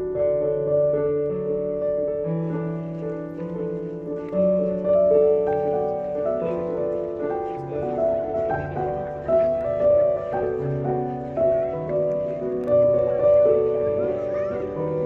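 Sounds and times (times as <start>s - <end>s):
slow gentle piano: 0.0s - 15.0s.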